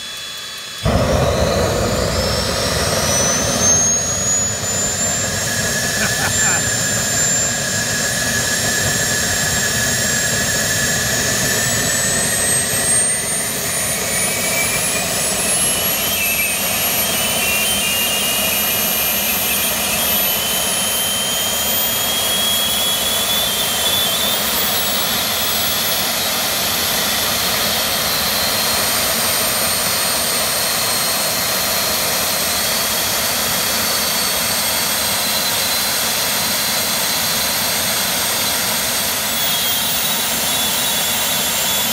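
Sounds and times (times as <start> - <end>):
turbine jet engine whine: 0.0 - 41.9.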